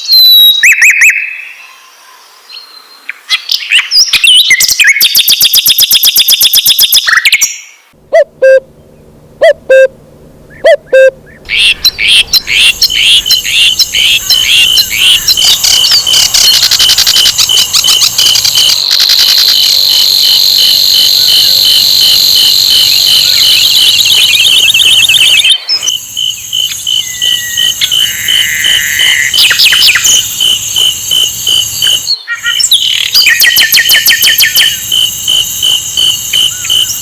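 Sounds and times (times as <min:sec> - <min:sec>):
bird rapid chirping: 0:09.4 - 0:09.9, 0:10.5 - 0:37.0
flycatcher high trill: 0:10.5 - 0:20.8.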